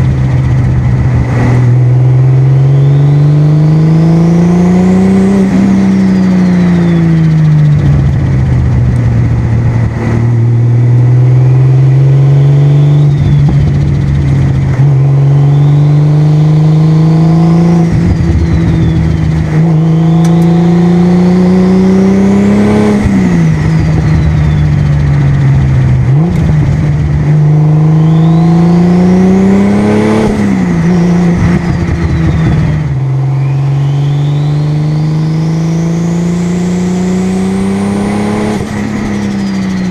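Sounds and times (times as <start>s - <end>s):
car engine revving through gears: 0.0s - 39.9s
turbo whistle: 12.6s - 13.7s, 15.3s - 16.1s, 18.1s - 20.6s, 27.9s - 28.9s, 31.7s - 35.8s
rushing fluttering turbo noise: 12.8s - 15.7s, 22.9s - 29.6s.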